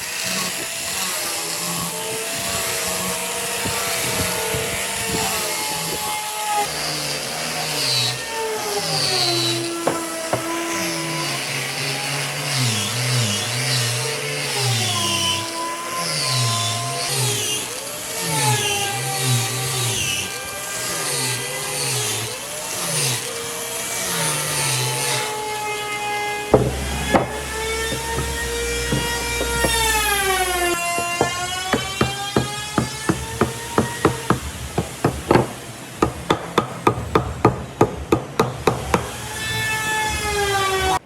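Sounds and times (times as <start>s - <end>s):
power tools cutting wood: 0.0s - 41.0s
sharp knocks: 9.8s - 10.8s, 26.5s - 39.2s
deep rumble: 26.6s - 30.8s.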